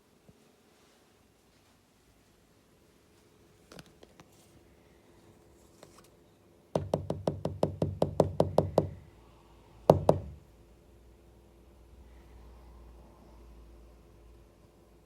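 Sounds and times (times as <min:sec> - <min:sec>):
sharp knocks: 0:06.8 - 0:09.0, 0:09.9 - 0:10.4.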